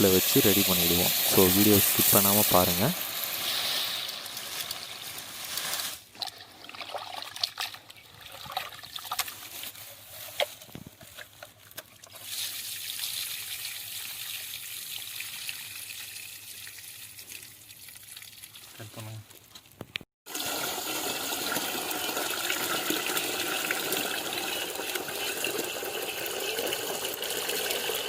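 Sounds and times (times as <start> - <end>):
running water stream: 0.0 - 9.5
rice splashing and clinking: 0.0 - 13.8.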